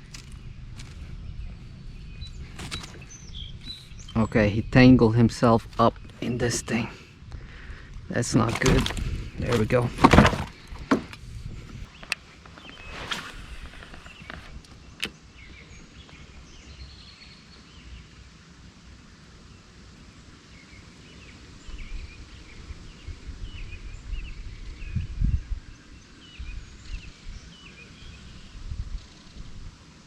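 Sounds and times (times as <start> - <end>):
low rumbles: 0.0 - 12.2
small birds chirping: 0.0 - 30.0.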